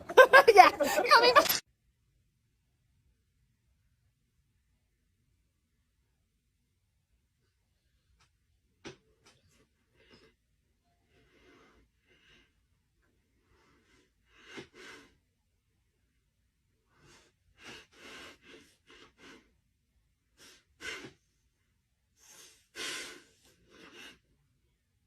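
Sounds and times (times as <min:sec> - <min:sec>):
short noisy breaths: 0:22.2 - 0:24.3.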